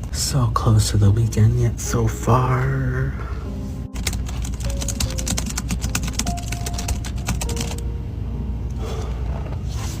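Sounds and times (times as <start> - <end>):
steady low hum: 0.0 - 10.0
rapid typing on a keyboard: 4.0 - 7.8.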